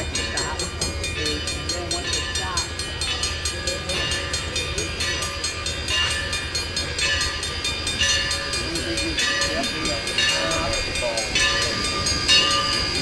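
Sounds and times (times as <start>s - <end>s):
steam train rolling past: 0.0s - 13.0s.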